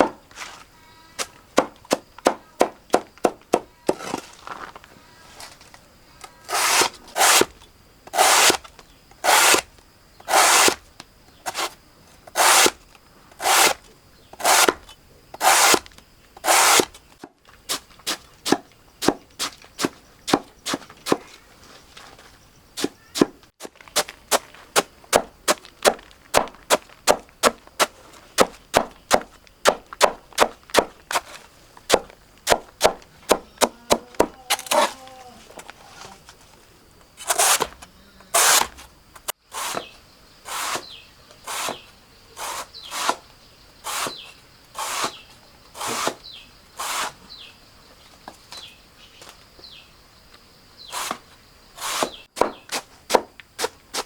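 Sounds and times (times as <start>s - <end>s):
blade chopping plants on wood: 0.0s - 0.6s, 1.2s - 4.7s, 6.5s - 10.8s, 11.4s - 13.8s, 14.4s - 21.4s, 22.8s - 35.2s, 37.2s - 37.8s, 38.4s - 40.8s, 41.5s - 43.2s, 44.8s - 46.2s, 50.9s - 51.2s, 51.8s - 54.0s.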